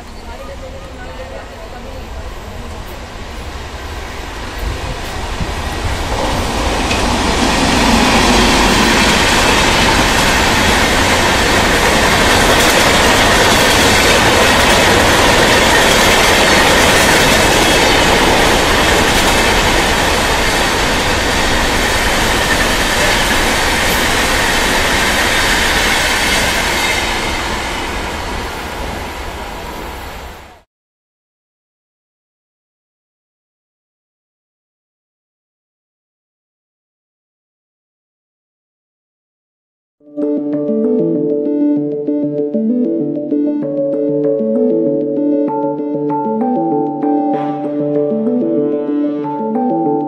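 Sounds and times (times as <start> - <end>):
train wheels rushing on rail: 0.0 - 30.6.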